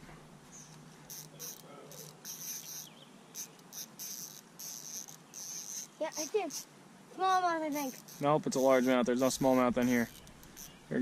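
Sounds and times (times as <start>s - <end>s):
insects chirping: 0.5s - 11.0s.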